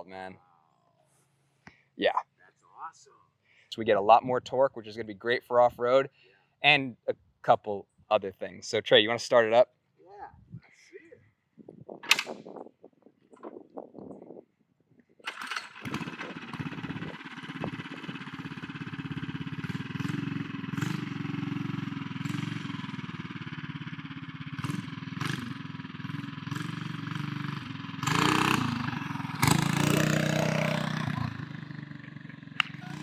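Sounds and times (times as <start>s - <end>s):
mini bike engine idling and revving: 15.3s - 33.0s.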